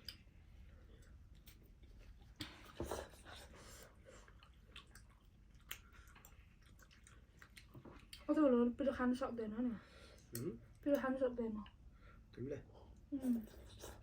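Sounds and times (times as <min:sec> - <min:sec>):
chewing noodles: 0:00.0 - 0:08.4.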